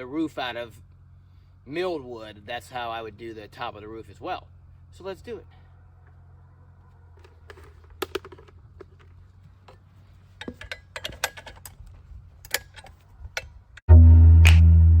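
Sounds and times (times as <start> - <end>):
clicks and metallic knocks: 7.2 - 13.9.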